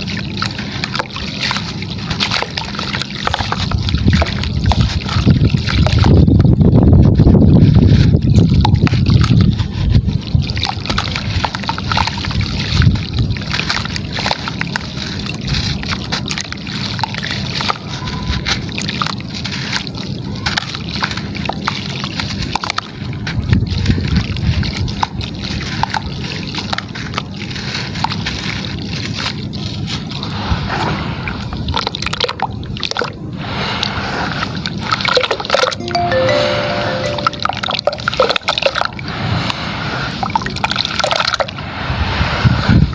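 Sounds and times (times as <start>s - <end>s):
gritty material splashing into water: 0.0s - 6.6s.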